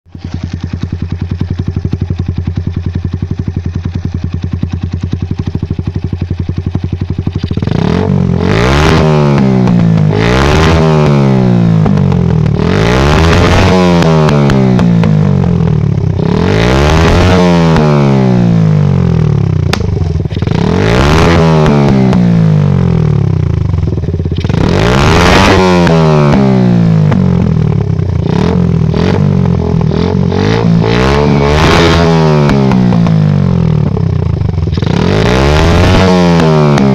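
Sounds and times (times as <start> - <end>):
motorcycle engine revving: 0.0 - 36.9
sharp crack: 19.6 - 22.3.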